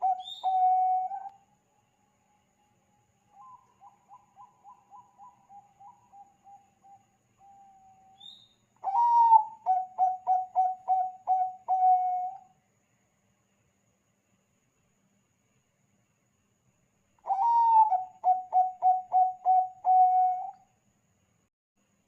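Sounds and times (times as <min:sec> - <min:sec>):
dove cooing: 0:00.0 - 0:01.3, 0:03.4 - 0:08.1, 0:08.8 - 0:12.4, 0:17.3 - 0:20.6.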